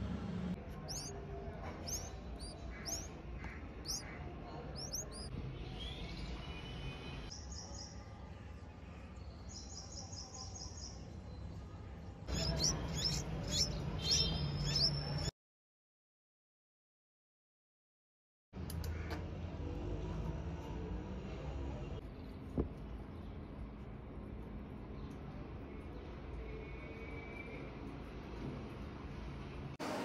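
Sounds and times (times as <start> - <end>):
nestlings begging chirps: 0.8 - 1.2, 1.8 - 5.3, 12.3 - 15.3.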